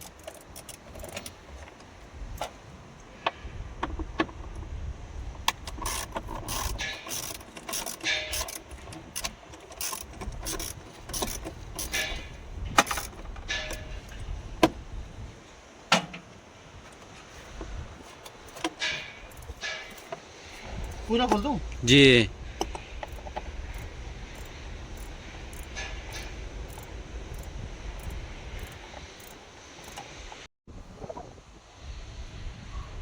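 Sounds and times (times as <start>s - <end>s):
ratchet clicking: 0.0s - 1.4s, 5.5s - 14.2s, 18.2s - 21.5s, 22.6s - 30.2s
hand tools clicking on metal: 0.0s - 2.6s, 5.4s - 14.3s, 16.9s - 21.5s, 22.6s - 30.2s.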